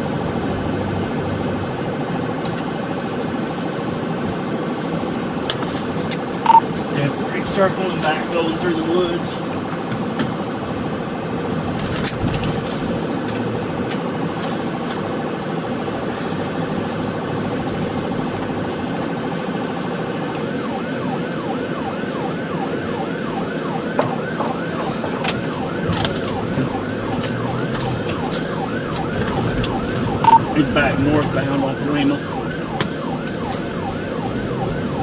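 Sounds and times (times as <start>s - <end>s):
car engine and road noise: 0.0s - 35.0s
siren yelping: 6.4s - 8.6s, 18.6s - 35.0s.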